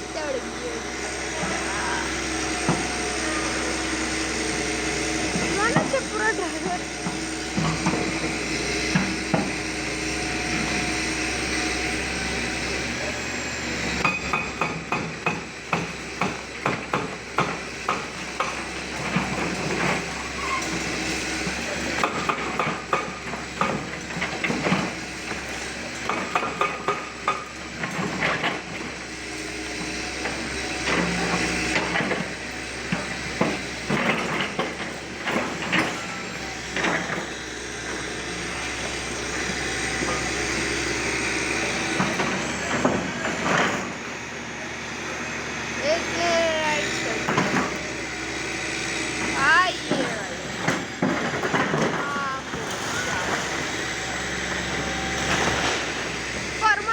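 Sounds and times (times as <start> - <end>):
hammering knocks and bangs: 14.0 - 20.0.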